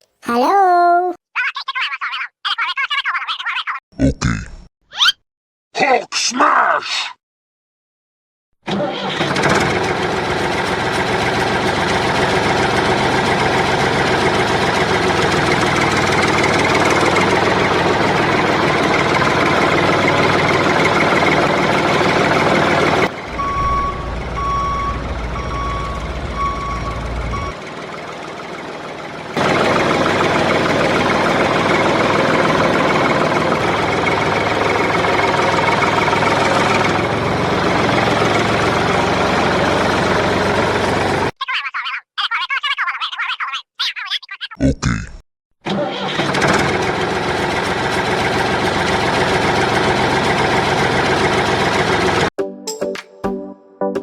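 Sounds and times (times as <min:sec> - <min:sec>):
tractor engine running: 0:08.7 - 0:41.3, 0:45.7 - 0:52.3
deep engine rumble: 0:11.3 - 0:41.3
reversing alarm beeping: 0:23.3 - 0:27.6.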